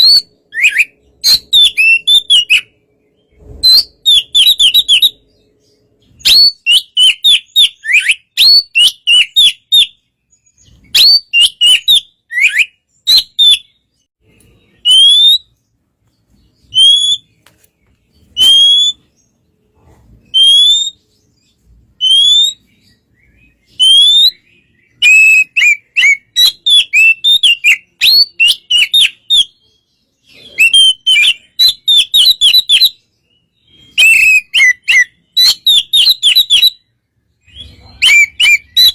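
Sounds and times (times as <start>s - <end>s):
bird singing whistled notes: 0.0s - 17.4s, 18.1s - 19.5s, 20.2s - 38.9s.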